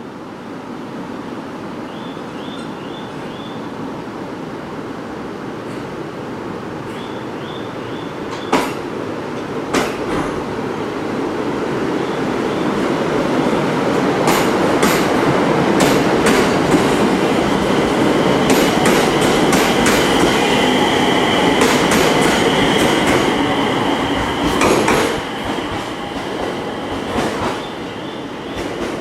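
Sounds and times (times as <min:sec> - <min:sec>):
train wheels clicking over rail joints: 0:08.3 - 0:10.5, 0:14.2 - 0:20.6, 0:21.4 - 0:27.9.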